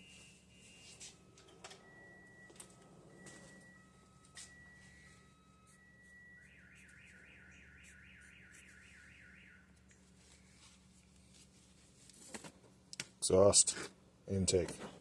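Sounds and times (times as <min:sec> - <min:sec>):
electronic alarm siren: 0:00.0 - 0:09.9.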